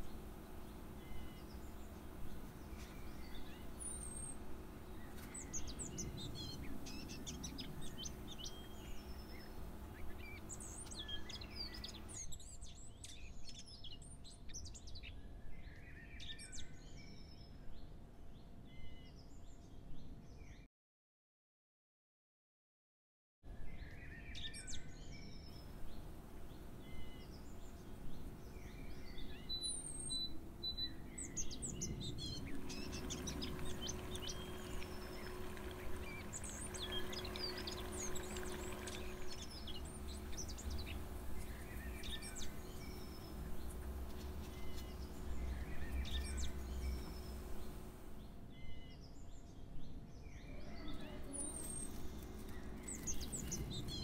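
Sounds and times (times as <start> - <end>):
steady low hum: 0.0 - 13.4, 25.4 - 49.3, 51.0 - 54.0
small birds chirping: 0.0 - 17.6, 23.8 - 54.0.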